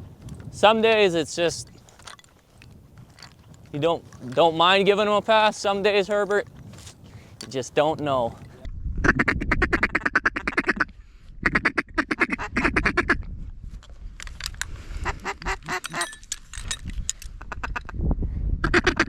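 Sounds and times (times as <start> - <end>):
duck calls: 11.5 - 13.2.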